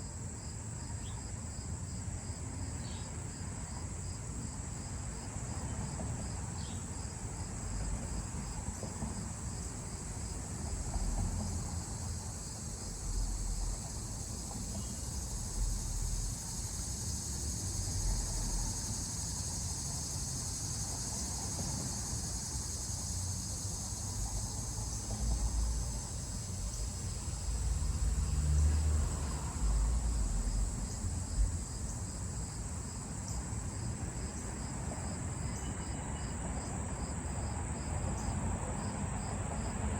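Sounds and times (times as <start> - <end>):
high-pitched insect chorus: 0.0 - 39.8
pulsing insect trill: 9.6 - 36.4.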